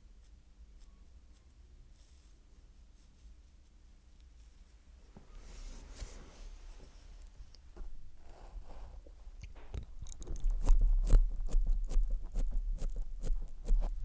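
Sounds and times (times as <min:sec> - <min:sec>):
wet mouth sounds and licking: 0:09.3 - 0:13.9.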